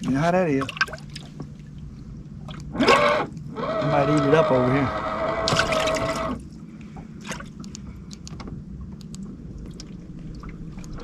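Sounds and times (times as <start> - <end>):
steady hum: 0.0 - 11.0
water lapping against hull: 0.0 - 11.0
light clicks: 7.6 - 9.8.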